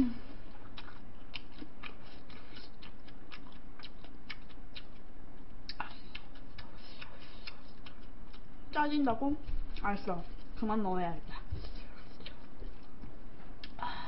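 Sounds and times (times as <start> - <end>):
wet chewing clicks and smacks: 0.6 - 8.6, 11.8 - 13.8.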